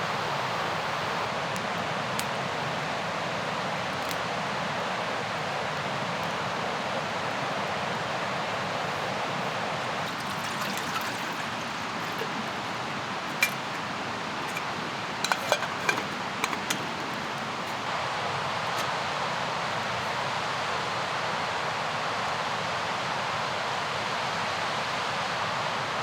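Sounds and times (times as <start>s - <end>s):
river rushing: 7.8s - 17.8s.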